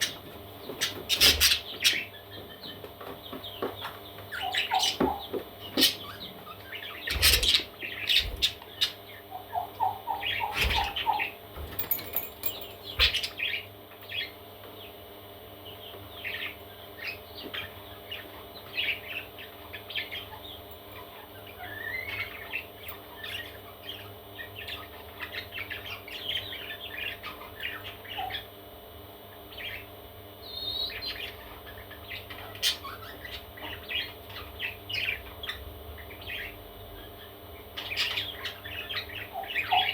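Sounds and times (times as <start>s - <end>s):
parrot chicks chirping and squawking: 0.0s - 39.9s
steady low hum: 0.0s - 39.9s.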